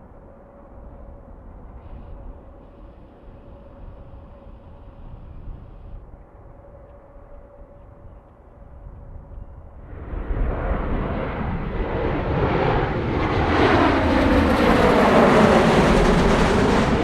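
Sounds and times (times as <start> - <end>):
jet airliner passing: 9.7 - 17.0.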